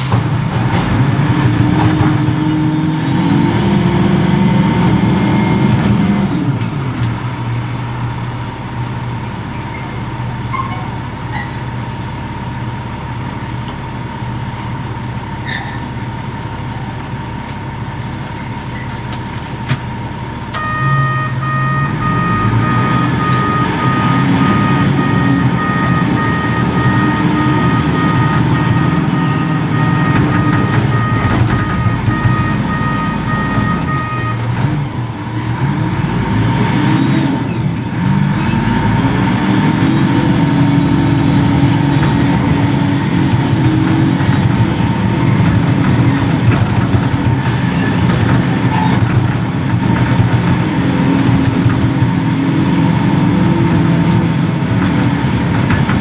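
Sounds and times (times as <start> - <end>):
diesel engine running: 0.0 - 56.0
high warning beeper: 20.6 - 36.1.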